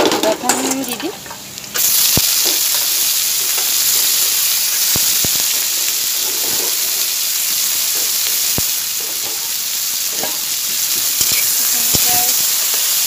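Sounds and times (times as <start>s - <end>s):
vegetables sizzling in hot oil: 0.0s - 13.0s
metal spatula in wok: 9.0s - 13.0s.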